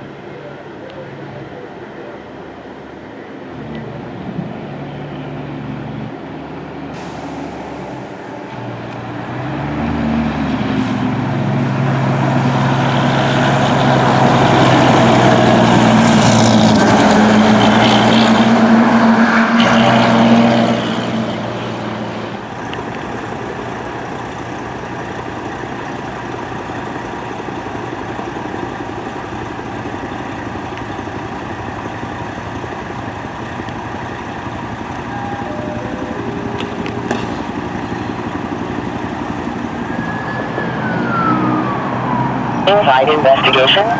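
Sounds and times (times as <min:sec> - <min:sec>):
fire truck driving past: 0:00.0 - 0:43.9
traffic noise: 0:00.0 - 0:43.9.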